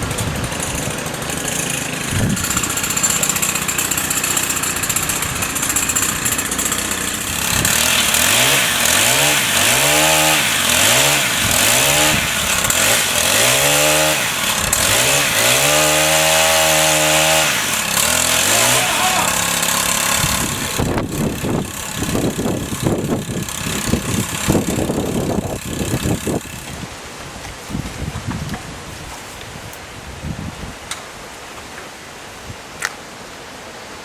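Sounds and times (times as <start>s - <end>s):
chainsaw engine revving: 0.0s - 26.8s.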